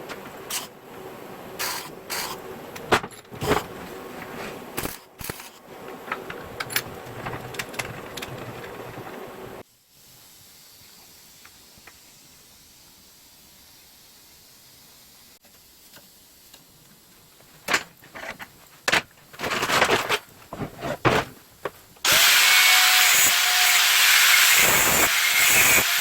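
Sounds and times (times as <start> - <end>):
metal parts clinking and scraping: 4.8 - 9.0, 17.6 - 21.3
faint hiss: 9.6 - 17.7.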